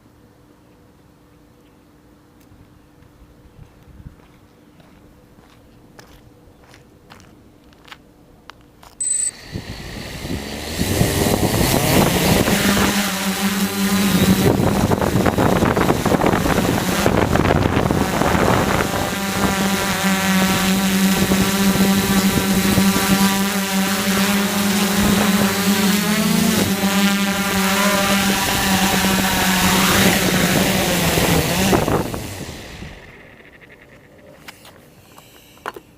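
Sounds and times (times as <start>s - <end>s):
drone motors humming: 9.0s - 35.9s
wind rushing over microphone: 9.4s - 34.0s.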